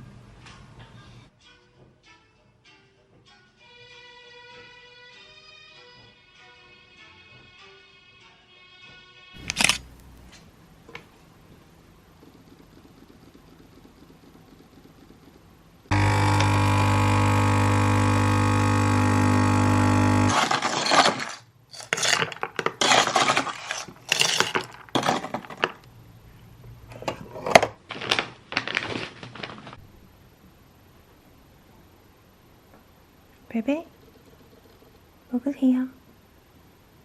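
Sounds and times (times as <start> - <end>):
electric machine humming: 9.4 - 27.4
short irregular noises: 20.2 - 25.7.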